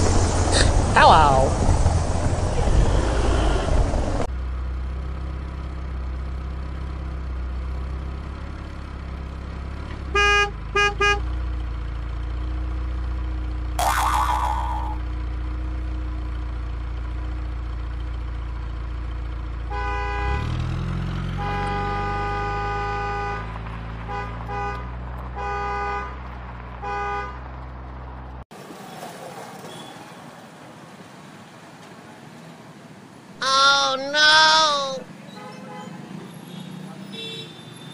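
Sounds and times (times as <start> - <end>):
truck engine humming and revving: 1.5 - 28.4
truck horn honking: 10.1 - 11.3, 19.7 - 20.6, 21.3 - 23.5
loud pitch-bending sound: 13.8 - 15.0.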